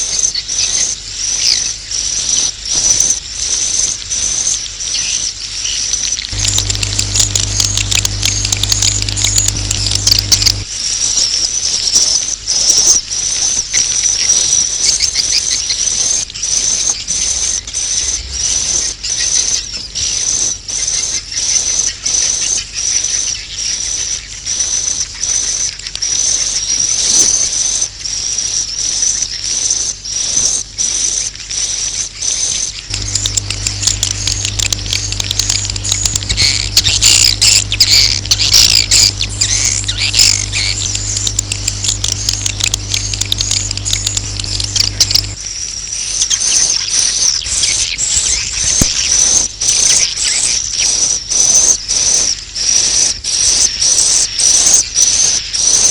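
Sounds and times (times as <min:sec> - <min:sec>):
low hum: 0:06.3 - 0:10.7, 0:32.9 - 0:45.4.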